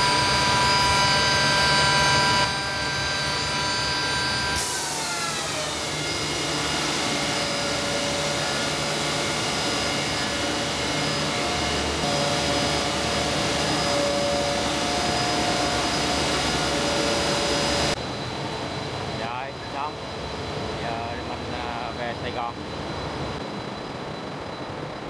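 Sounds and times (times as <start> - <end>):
machine rushing noise: 0.0 - 19.2
whining tones: 0.0 - 25.0.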